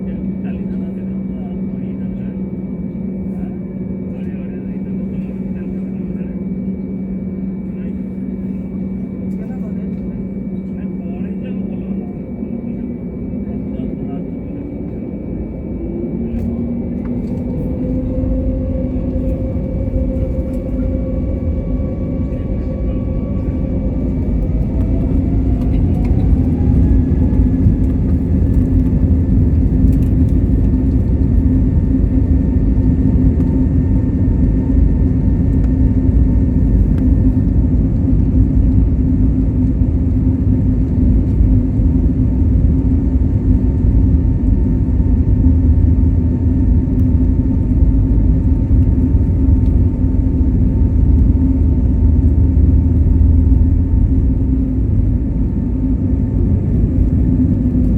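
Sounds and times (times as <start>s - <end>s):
jet engines whining: 0.0s - 57.9s
low engine rumble: 0.0s - 57.9s.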